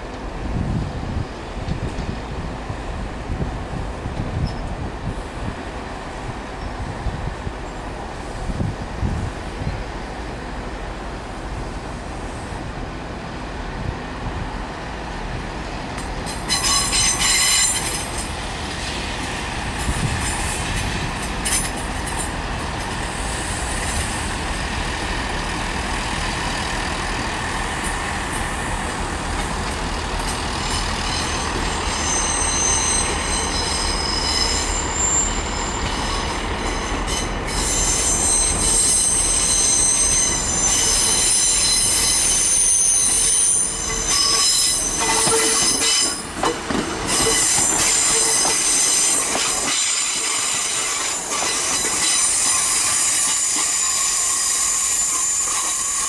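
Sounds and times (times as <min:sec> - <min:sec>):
train rumbling: 0:00.0 - 0:56.0
train wheels squealing: 0:04.4 - 0:04.7, 0:16.2 - 0:19.0, 0:25.5 - 0:56.0.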